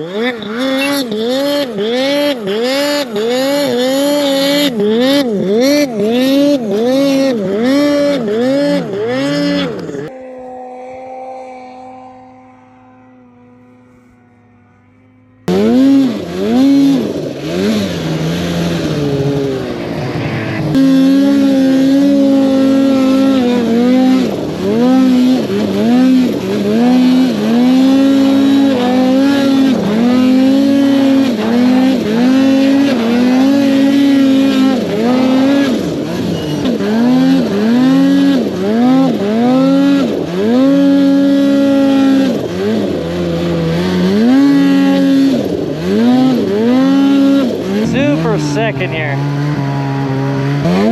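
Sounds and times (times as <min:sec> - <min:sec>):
snowmobile engine revving: 0:00.0 - 0:50.9.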